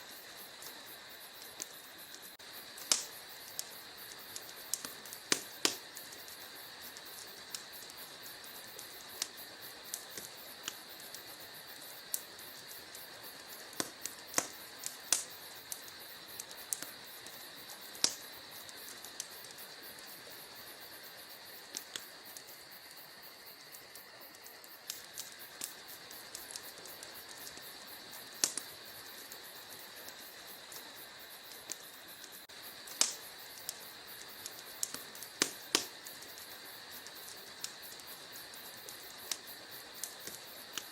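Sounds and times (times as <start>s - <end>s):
fire hiss: 0.0s - 40.9s
wood fire crackling: 0.0s - 40.9s.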